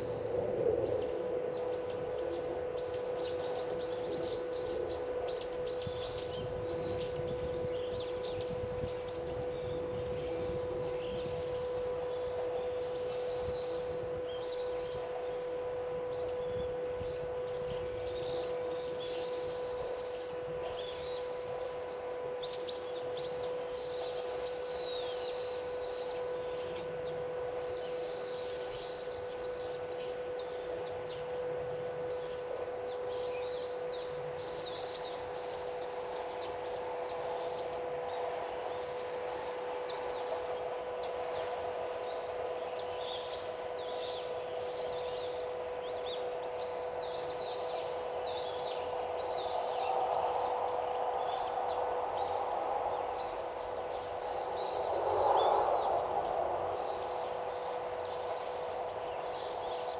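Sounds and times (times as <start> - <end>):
small birds chirping: 0.0 - 59.9
steady pitched hum: 0.0 - 59.9.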